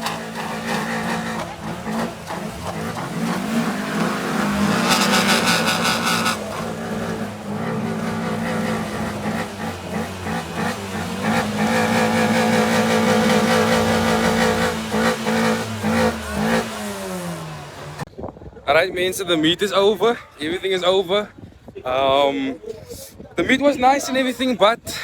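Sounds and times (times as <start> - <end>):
rapid crackling burst: 0.0 - 13.6
car engines revving: 0.0 - 18.1.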